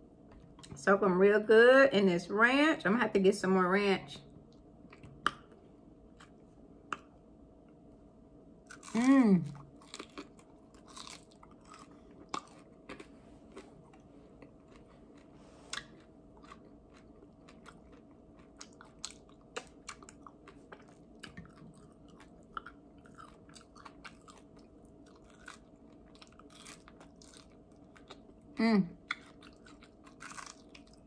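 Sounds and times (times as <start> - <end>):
person biting and chewing: 8.6 - 28.4, 29.0 - 31.0
small crunches: 8.7 - 28.3, 29.1 - 31.0.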